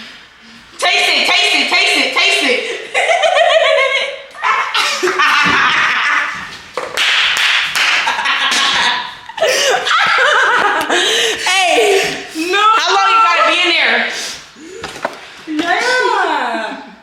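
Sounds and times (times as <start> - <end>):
people laughing and shrieking: 2.7 - 6.5, 8.4 - 13.8.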